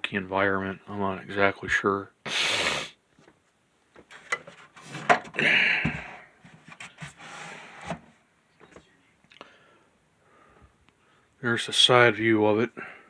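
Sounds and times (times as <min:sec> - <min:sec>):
plastic box fan being handled: 0:04.0 - 0:08.1
rasping rubbing scrapes: 0:06.6 - 0:08.1.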